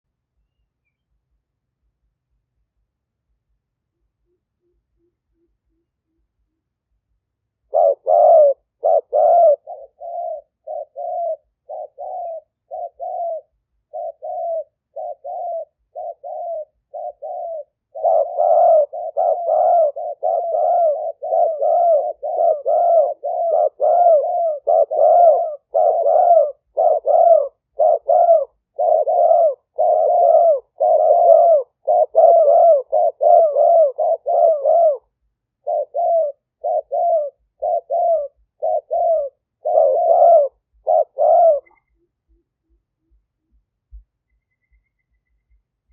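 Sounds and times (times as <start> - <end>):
doves cooing: 7.7 - 43.2.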